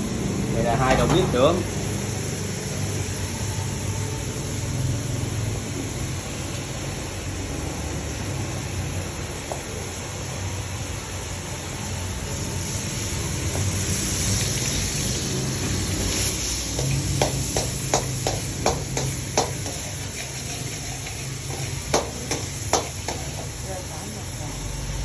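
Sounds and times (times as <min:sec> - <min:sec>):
food sizzling in a frying pan: 0:00.0 - 0:25.0
utensil clicking against pan: 0:16.8 - 0:23.3.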